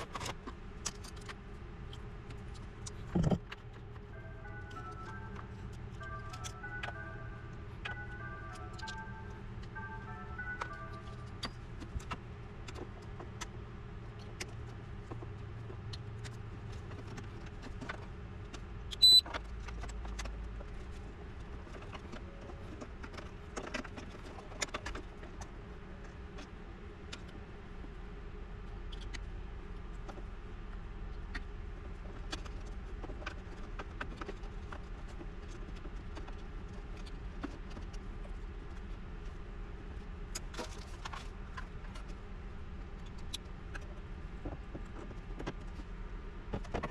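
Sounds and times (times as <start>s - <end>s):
low steady hum: 0.0s - 46.9s
short high beep: 19.0s - 19.2s.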